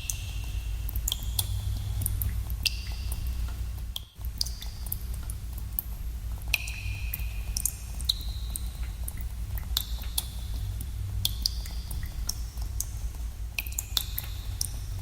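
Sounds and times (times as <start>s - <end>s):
steady low rumble: 0.0s - 15.0s
water drops plinking in a cave: 0.0s - 15.0s.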